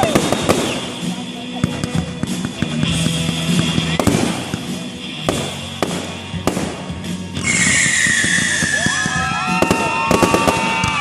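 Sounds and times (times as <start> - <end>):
fireworks bangs and crackles: 0.0 - 11.0
music playing: 0.0 - 11.0.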